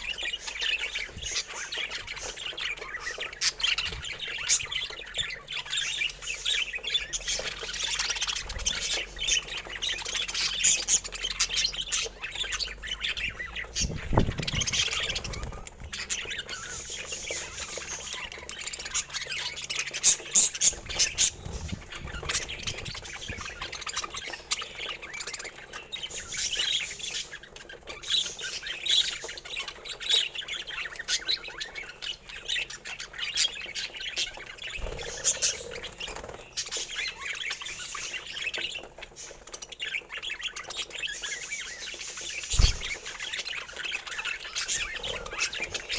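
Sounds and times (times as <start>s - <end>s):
budgerigars chattering: 0.0s - 45.9s.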